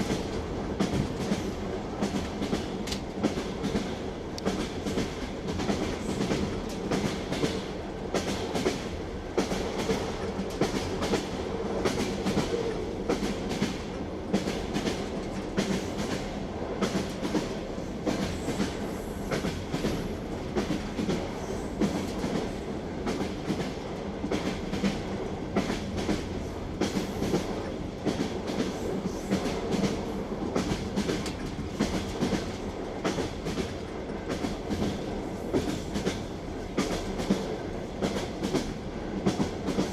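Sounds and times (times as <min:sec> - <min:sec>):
railway carriage rumbling: 0:00.0 - 0:39.9
train wheels clattering: 0:00.0 - 0:39.9.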